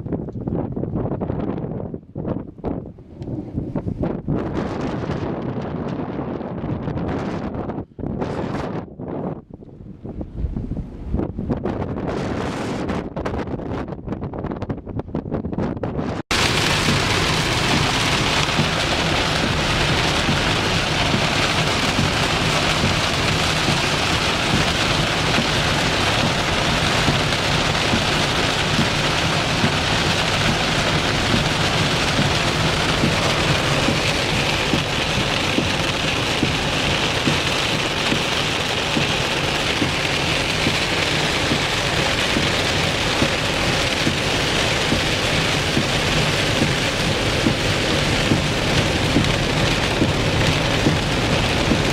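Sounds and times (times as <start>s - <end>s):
heavy rain on hard surface: 16.3s - 51.9s.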